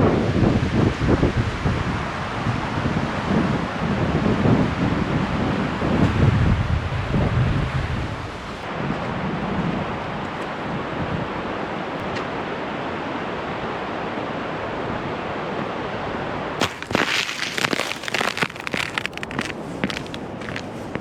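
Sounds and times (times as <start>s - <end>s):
crackling and crunching: 16.6s - 21.0s.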